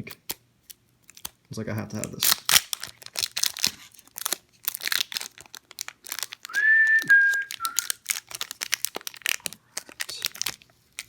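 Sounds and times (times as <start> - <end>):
foil wrapper crinkling: 0.3 - 11.0
short whistle: 6.5 - 7.9.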